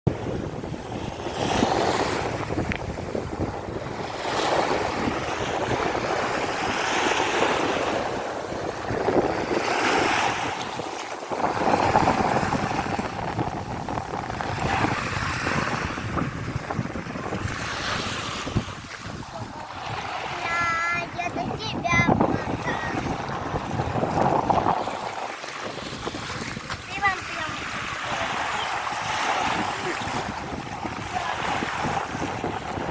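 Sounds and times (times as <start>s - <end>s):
sea waves breaking on shore: 0.1s - 32.9s
wind buffeting microphone: 0.1s - 32.9s.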